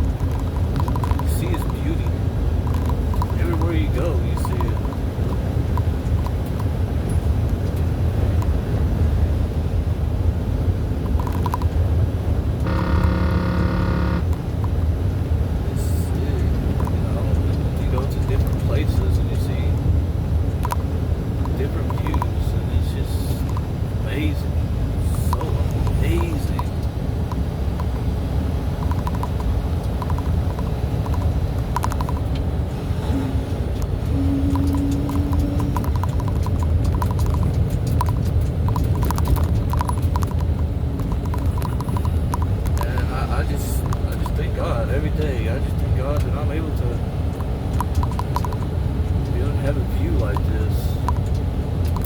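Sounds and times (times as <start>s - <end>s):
clicking rattles: 0.0s - 8.5s, 11.0s - 11.8s, 16.4s - 19.9s, 20.6s - 23.7s, 28.8s - 32.5s, 33.7s - 46.4s, 47.3s - 52.0s
truck engine rumbling: 0.0s - 52.0s
steady pitched tone: 12.6s - 14.5s.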